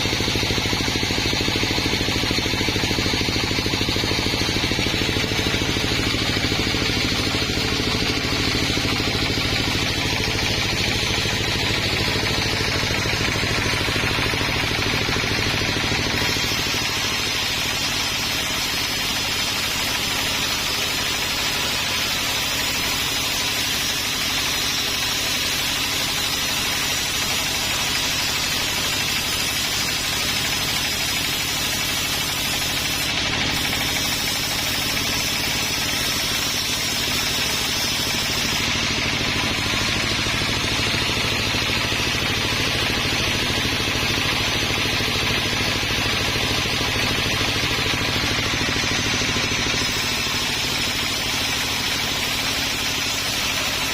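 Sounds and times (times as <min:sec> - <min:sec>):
sawmill engine running: 0:00.0 - 0:53.9
hiss of sawing: 0:00.6 - 0:44.1, 0:45.0 - 0:53.9.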